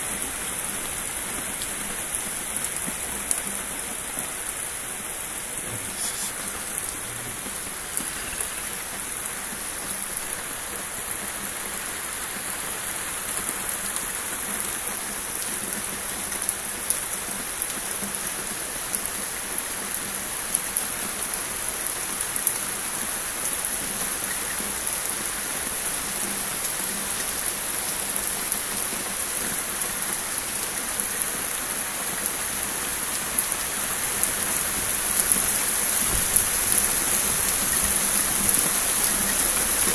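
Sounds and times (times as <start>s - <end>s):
rain falling steadily: 0.0s - 39.9s
sharp raindrop hits: 35.1s - 39.9s.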